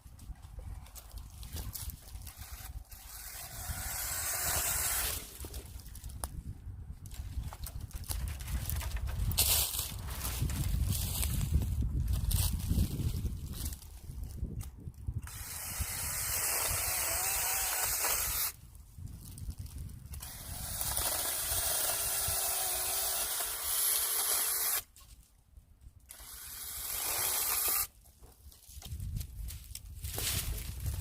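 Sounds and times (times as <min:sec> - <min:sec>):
mini chainsaw cutting branches: 0:02.1 - 0:06.0, 0:15.2 - 0:18.6, 0:20.1 - 0:25.0, 0:26.1 - 0:28.0.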